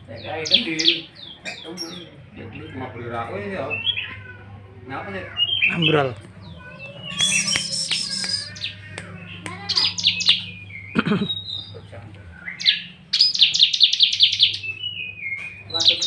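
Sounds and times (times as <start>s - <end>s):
bird trilling rapid high notes: 6.7s - 11.7s.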